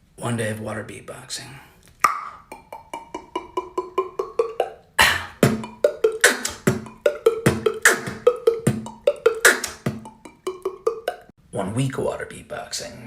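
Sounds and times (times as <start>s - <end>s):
beatboxing kick and snare: 2.0s - 11.3s
mouth water-drop bloops: 2.0s - 11.3s.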